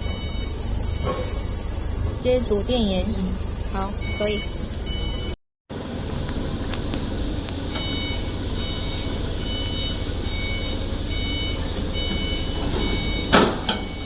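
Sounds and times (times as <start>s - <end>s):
high electronic beep: 3.0s - 5.4s
machinery humming: 5.7s - 14.0s.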